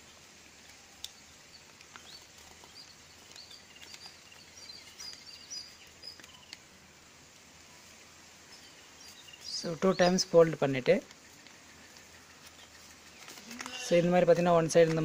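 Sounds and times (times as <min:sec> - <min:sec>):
low background hiss: 0:00.0 - 0:15.0
faint bird chirping: 0:00.5 - 0:06.8, 0:07.6 - 0:14.8.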